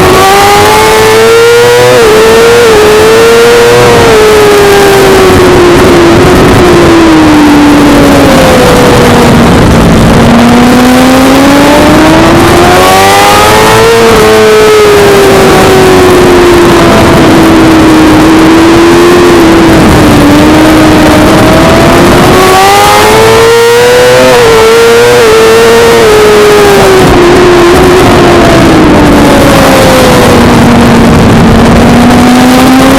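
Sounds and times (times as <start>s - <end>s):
racing motorcycle engine: 0.0s - 32.9s
steady rush of noise: 0.0s - 32.9s.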